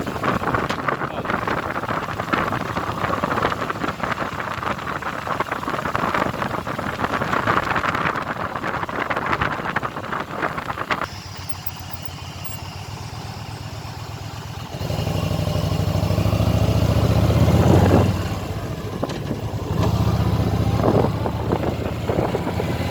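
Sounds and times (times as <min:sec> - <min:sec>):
rushing wind and road noise: 0:00.0 - 0:22.9
motorcycle engine running: 0:10.6 - 0:22.9.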